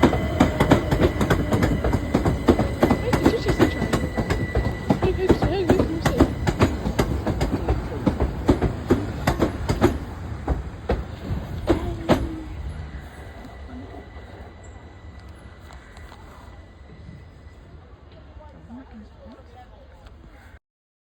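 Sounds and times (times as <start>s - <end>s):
train wheels clacking over rail joints: 0.0s - 13.7s
low train rumble: 0.0s - 20.4s.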